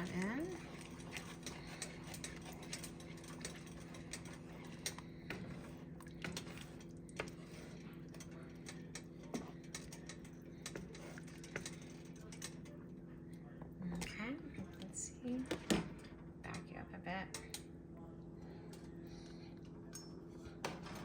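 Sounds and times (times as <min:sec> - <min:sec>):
spoon scraping pot: 0:00.0 - 0:12.6
steady low hum: 0:00.0 - 0:21.0.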